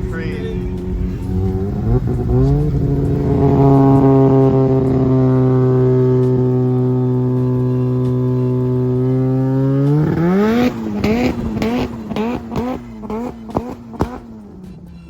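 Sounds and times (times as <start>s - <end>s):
rotary engine revving: 0.0s - 15.0s
exhaust pops and cracks: 10.1s - 14.5s.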